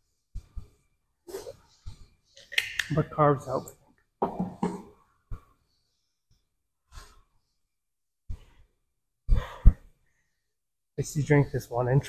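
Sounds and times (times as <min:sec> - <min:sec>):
man breathing heavily: 0:09.3 - 0:10.5.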